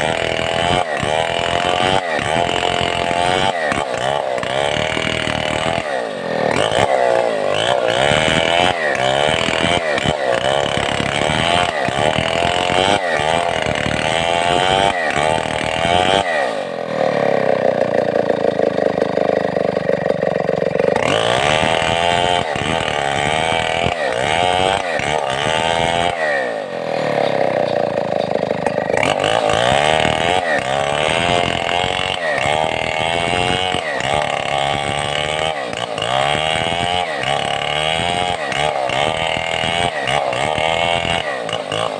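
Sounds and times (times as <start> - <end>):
chainsaw cutting log: 0.0 - 41.9.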